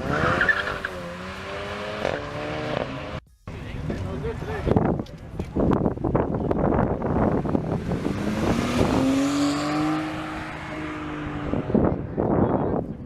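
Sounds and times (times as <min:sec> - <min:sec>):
car engine accelerating: 0:00.0 - 0:03.7, 0:06.9 - 0:12.2.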